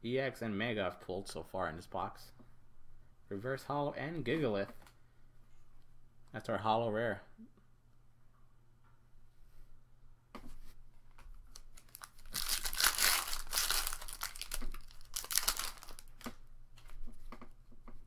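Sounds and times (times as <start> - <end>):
cards rustling and tapping: 11.1 - 17.5
foil wrapper crinkling and tearing: 11.4 - 17.0.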